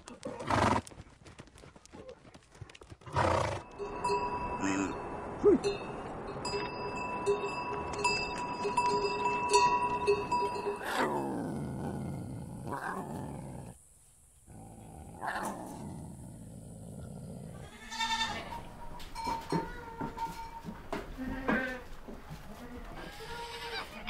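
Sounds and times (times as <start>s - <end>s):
bell-like ringing tones: 3.7s - 10.9s
lion roaring: 10.8s - 13.8s
goat bleating: 17.6s - 18.7s, 21.2s - 24.0s.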